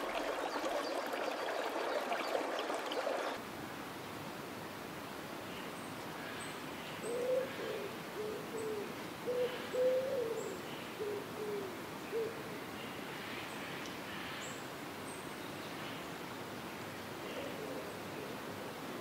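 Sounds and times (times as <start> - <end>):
dove cooing: 7.1 - 12.4.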